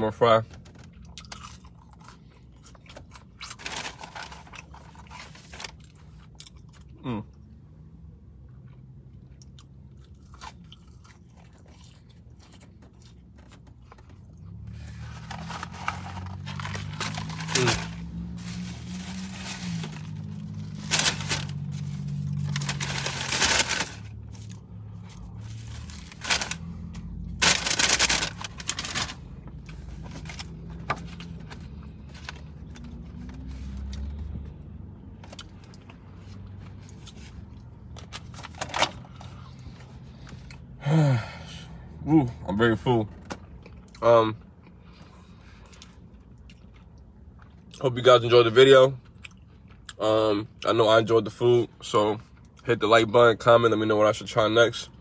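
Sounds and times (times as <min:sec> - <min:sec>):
chewing and crunching food: 0:00.5 - 0:07.5, 0:08.4 - 0:40.7, 0:43.1 - 0:51.4
paper wrapping crackling: 0:03.4 - 0:05.8, 0:14.8 - 0:24.4, 0:25.4 - 0:31.2.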